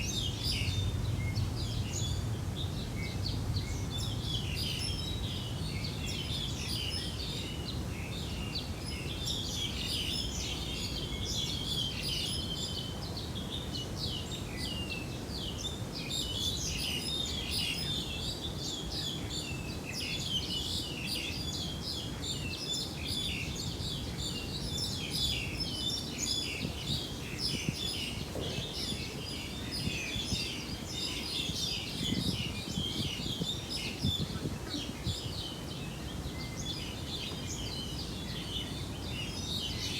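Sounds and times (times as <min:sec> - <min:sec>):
steady low rumbling noise: 0:00.0 - 0:06.5
small birds chirping: 0:00.0 - 0:39.9.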